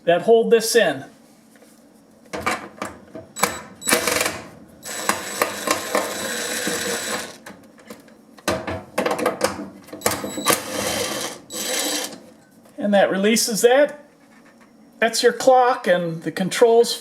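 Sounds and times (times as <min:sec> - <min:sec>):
power driver motor running: 0:03.4 - 0:07.4, 0:10.6 - 0:12.1.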